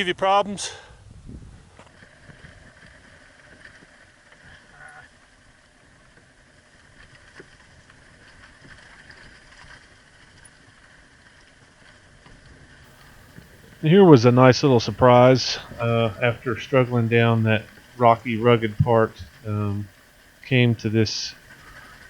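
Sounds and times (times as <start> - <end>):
motorcycle low rumble: 12.9 - 22.0.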